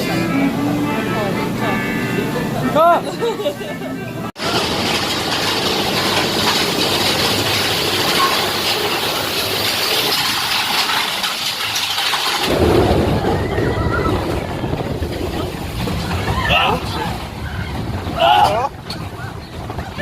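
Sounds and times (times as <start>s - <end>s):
wind buffeting microphone: 12.5s - 20.0s.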